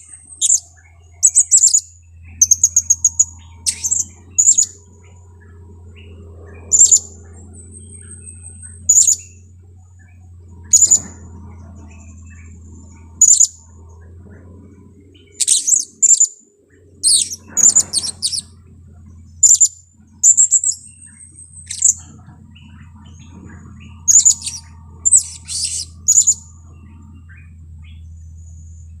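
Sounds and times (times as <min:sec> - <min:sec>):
steady low hum: 0:00.0 - 0:29.0
parrot high-pitched chirps: 0:00.3 - 0:00.6, 0:01.2 - 0:04.8, 0:06.7 - 0:07.1, 0:08.0 - 0:09.3, 0:10.7 - 0:11.1, 0:13.2 - 0:13.6, 0:15.4 - 0:16.4, 0:17.0 - 0:18.5, 0:19.4 - 0:20.9, 0:21.6 - 0:22.0, 0:24.1 - 0:26.4.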